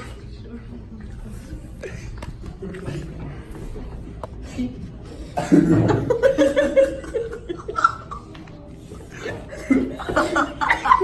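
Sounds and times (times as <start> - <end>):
people laughing: 5.4 - 11.0.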